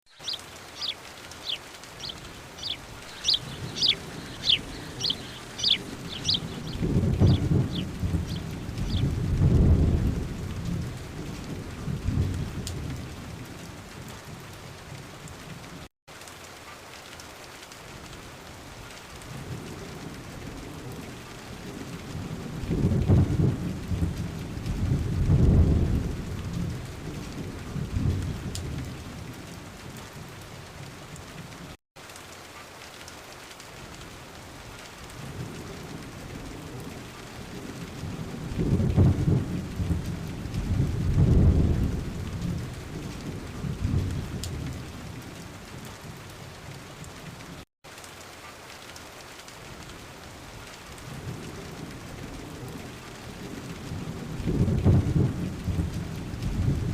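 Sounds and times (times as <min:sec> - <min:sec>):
steady rain: 0:00.1 - 0:56.9
rolling thunder: 0:00.2 - 0:13.6, 0:19.3 - 0:29.3, 0:35.2 - 0:46.2, 0:51.1 - 0:56.9.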